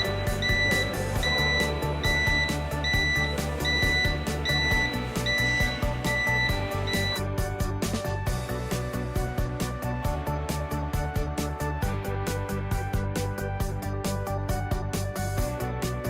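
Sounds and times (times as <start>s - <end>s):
high electronic beep: 0.0s - 7.2s
background music with steady beat: 0.0s - 16.0s.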